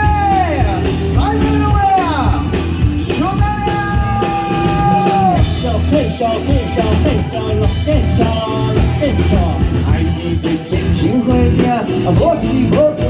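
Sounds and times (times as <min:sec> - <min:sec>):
lead guitar line: 0:00.0 - 0:13.0
rock band playing: 0:00.0 - 0:13.0.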